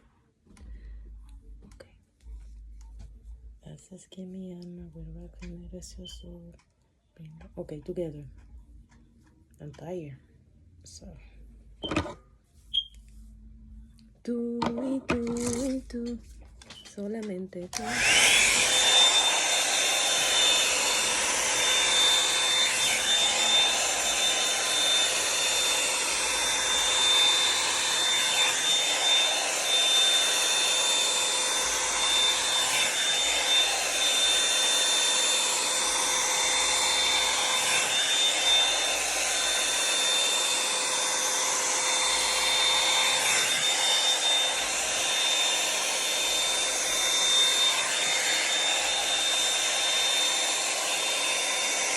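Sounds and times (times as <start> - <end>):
hair dryer air rush: 17.7 - 51.9.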